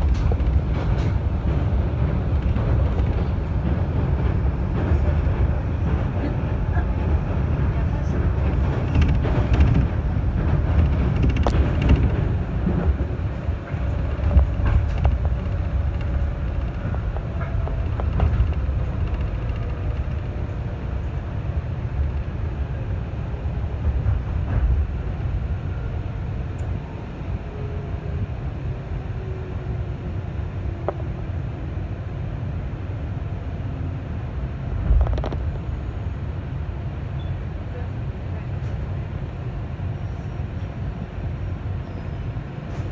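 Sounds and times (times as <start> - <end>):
wheels rumbling on rails: 0.0 - 42.9.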